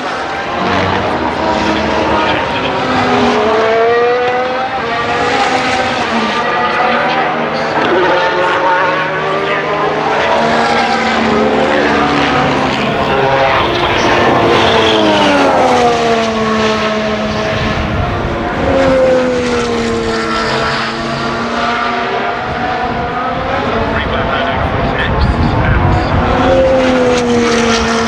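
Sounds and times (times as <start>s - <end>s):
racing cars passing at high revs: 0.0s - 28.0s.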